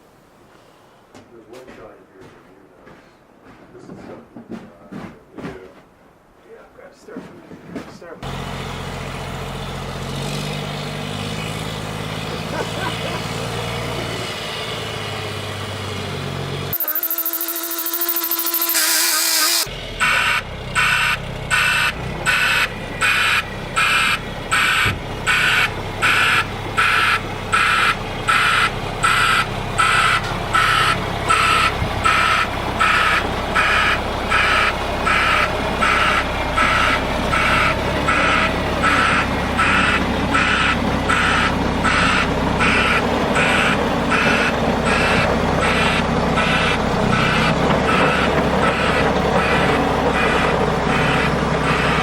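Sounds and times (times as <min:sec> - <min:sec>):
diesel engine running: 0:08.0 - 0:52.0
reversing alarm beeping: 0:16.7 - 0:52.0.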